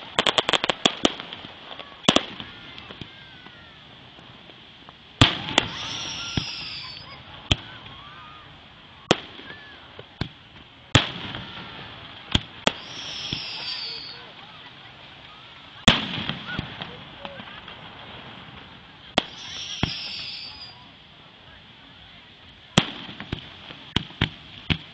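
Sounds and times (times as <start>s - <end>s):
firework booms: 0.0s - 20.9s, 22.7s - 24.9s
crackling firework bangs: 0.0s - 24.9s
firework whistles falling in pitch: 5.4s - 8.5s, 12.7s - 14.3s, 19.2s - 20.9s.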